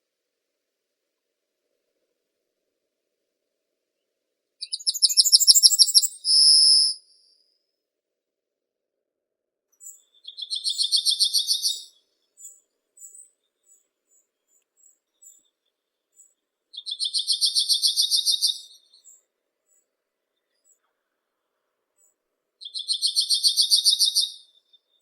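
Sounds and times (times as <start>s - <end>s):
short high bird chips: 4.6s - 7.1s
songbird trilling: 4.6s - 7.1s.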